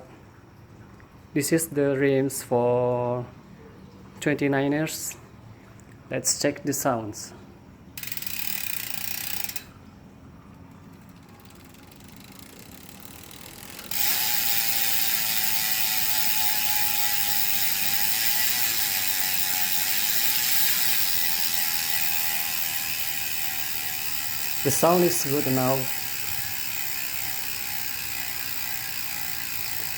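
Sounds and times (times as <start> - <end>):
bicycle freehub ratcheting buzz: 8.0 - 9.8, 10.9 - 29.9.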